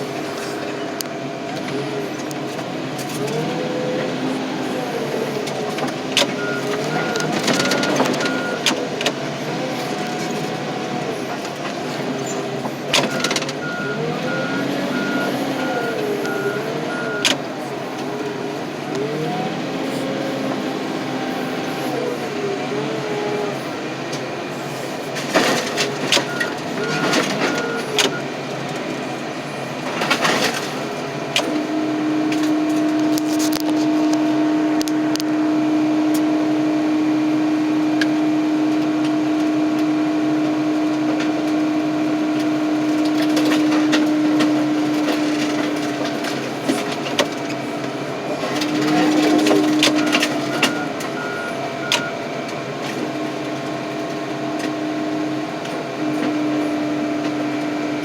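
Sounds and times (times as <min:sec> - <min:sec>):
hydraulic hum under load: 0:00.0 - 0:58.0
high beeps: 0:06.4 - 0:08.6, 0:13.1 - 0:17.4.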